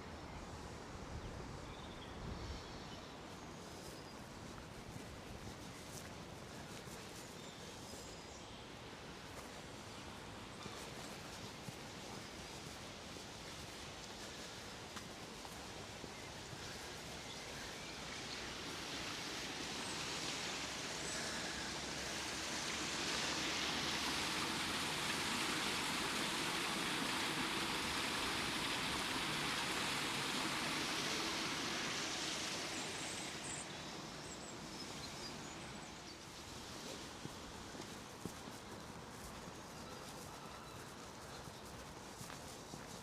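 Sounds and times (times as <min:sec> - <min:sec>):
rushing water from a weir: 0:10.8 - 0:37.2.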